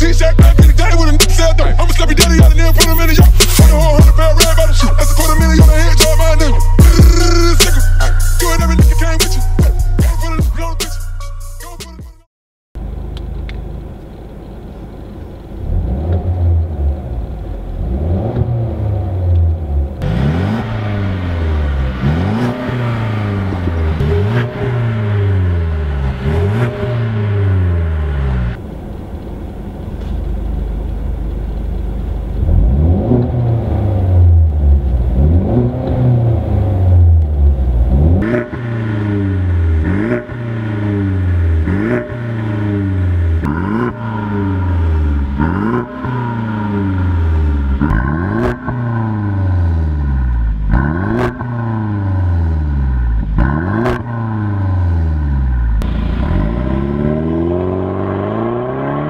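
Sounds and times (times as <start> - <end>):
car engine revving: 0.0 - 10.7, 13.4 - 59.0
exhaust cracks: 13.0 - 59.0.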